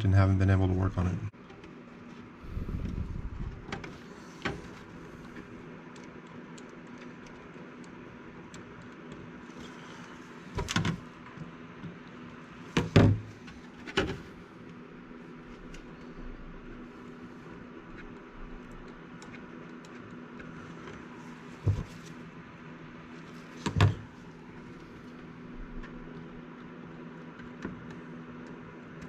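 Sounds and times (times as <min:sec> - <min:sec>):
faint steady hum: 0:00.0 - 0:29.0
hard parts knocking on workbench: 0:12.7 - 0:13.3.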